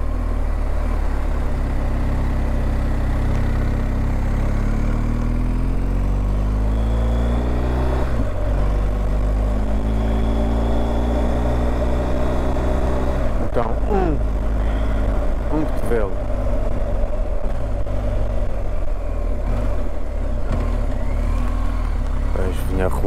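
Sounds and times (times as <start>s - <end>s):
motorcycle engine revving under load: 0.0s - 22.9s.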